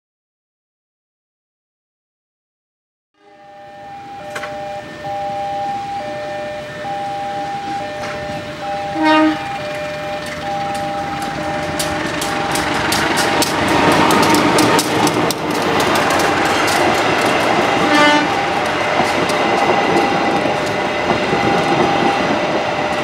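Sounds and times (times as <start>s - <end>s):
train horn blast: 3.2s - 14.5s, 17.7s - 23.0s
alternating warning tones: 3.2s - 23.0s
train passing with rumble: 3.3s - 23.0s
wheels clicking over rail joints: 4.0s - 23.0s.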